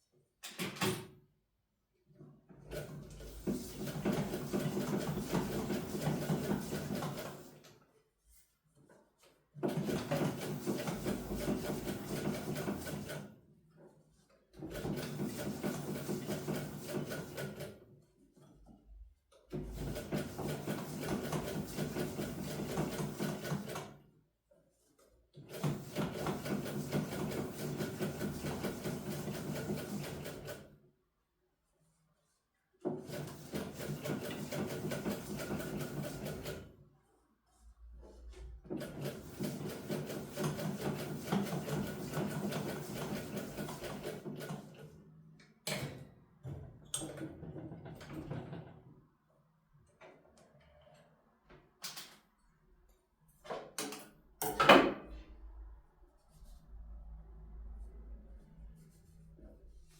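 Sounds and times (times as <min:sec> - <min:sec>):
sewing machine stitching: 0:02.6 - 0:07.6, 0:09.6 - 0:13.4, 0:14.5 - 0:17.8, 0:19.5 - 0:24.0, 0:25.4 - 0:30.8, 0:32.9 - 0:36.7, 0:38.6 - 0:44.9.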